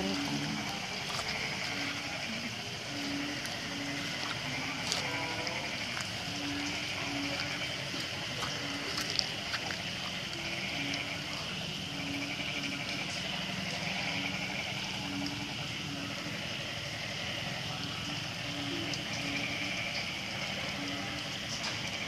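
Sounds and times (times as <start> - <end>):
heavy rain falling: 0.0 - 22.0.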